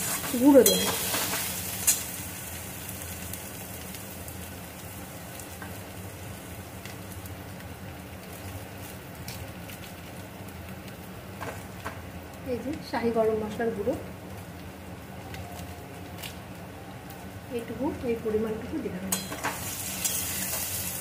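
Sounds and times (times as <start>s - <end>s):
vegetables sizzling in oil: 0.0s - 21.0s
metal spatula knocking pan: 0.6s - 1.2s.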